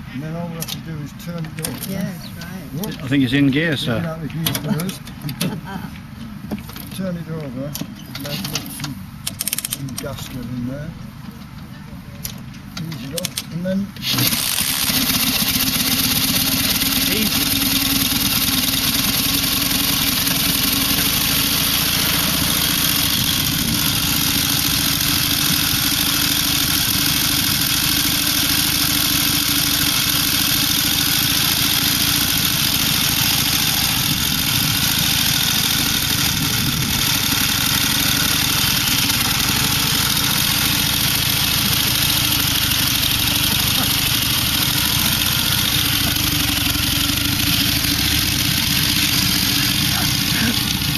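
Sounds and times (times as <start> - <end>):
motorcycle engine idling: 14.3 - 50.9.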